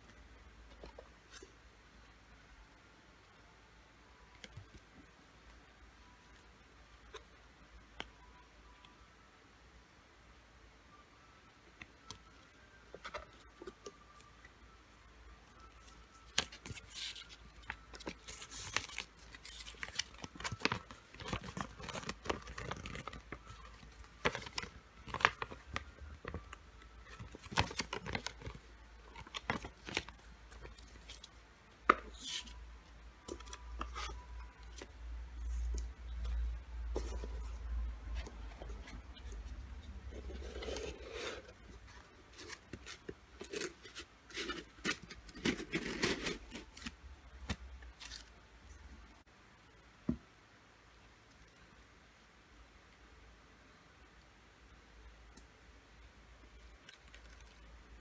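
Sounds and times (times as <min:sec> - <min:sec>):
packaging rustling and tearing: 0:15.8 - 0:31.4, 0:40.2 - 0:48.3.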